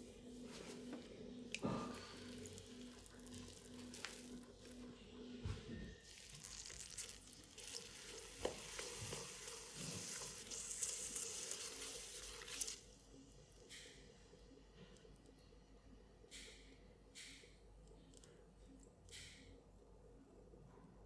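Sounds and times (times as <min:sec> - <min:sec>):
faint steady hum: 0:00.0 - 0:21.0
wet hiss of clay on pottery wheel: 0:06.0 - 0:13.3.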